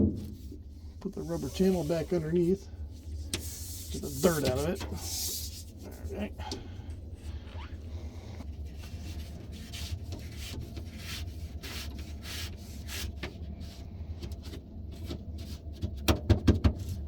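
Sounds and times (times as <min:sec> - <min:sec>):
rubbing strokes on rubber: 0:00.2 - 0:02.6, 0:03.2 - 0:05.9, 0:08.8 - 0:13.8.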